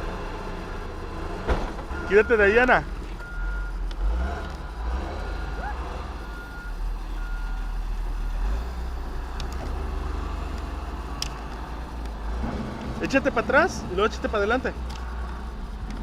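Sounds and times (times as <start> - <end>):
low engine rumble: 0.0 - 16.0
reversing alarm beeping: 1.9 - 3.8, 4.6 - 7.8.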